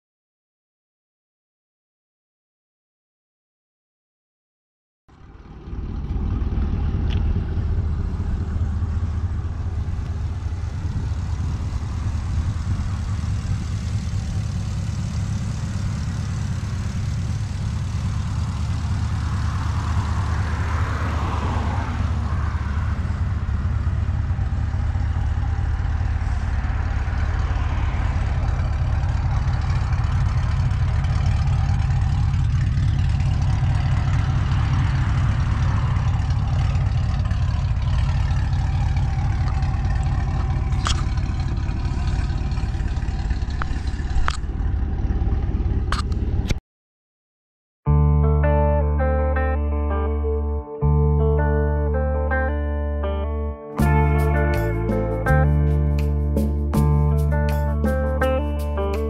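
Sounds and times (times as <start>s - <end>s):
car engine idling with exhaust rumble: 5.1s - 46.5s.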